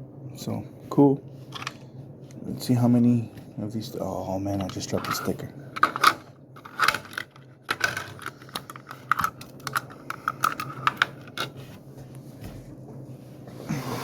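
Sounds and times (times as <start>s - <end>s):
plastic toy parts clicking: 5.8s - 11.5s.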